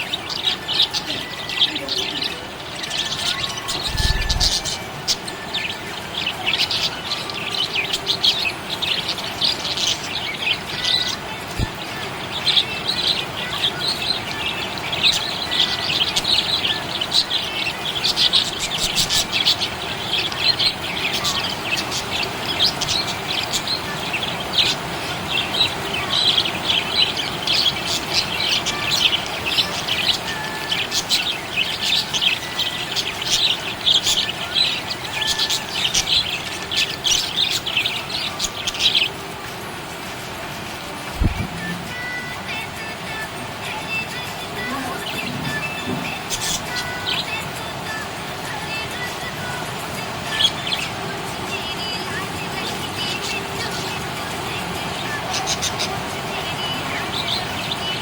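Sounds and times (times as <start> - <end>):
budgie chirping: 0.0 - 5.6, 41.0 - 42.3.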